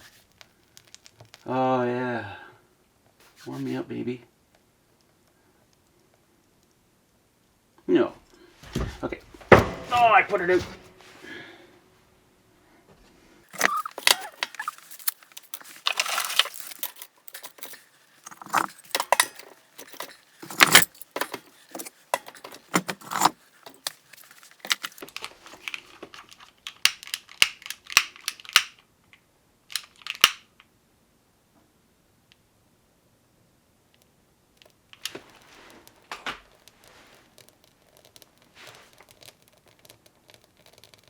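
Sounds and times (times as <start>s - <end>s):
kindling and stove parts clattering: 8.6s - 11.5s, 13.5s - 25.7s.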